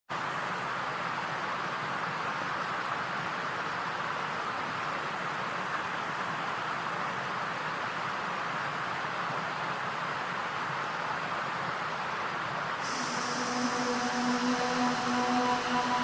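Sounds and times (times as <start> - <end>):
steady rushing noise: 12.8 - 16.0.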